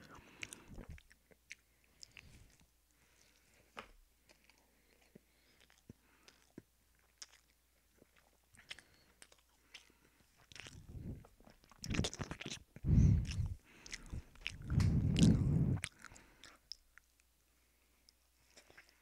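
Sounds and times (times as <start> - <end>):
crunchy chewing close up: 0.0 - 3.5, 4.2 - 17.3
mouth clicks: 10.5 - 16.8.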